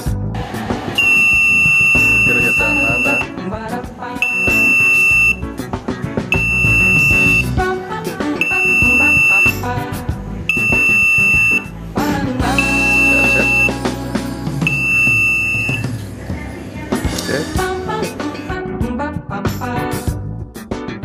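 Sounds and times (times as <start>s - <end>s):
music: 0.0s - 21.0s
loud high electronic beep: 1.0s - 3.3s, 4.2s - 5.4s, 6.4s - 7.5s, 8.4s - 9.6s, 10.5s - 11.7s, 12.5s - 14.0s, 14.6s - 16.0s.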